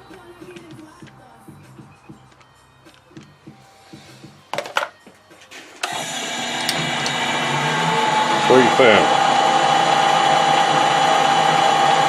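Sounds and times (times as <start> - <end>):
metal lathe whining: 5.8 - 12.0.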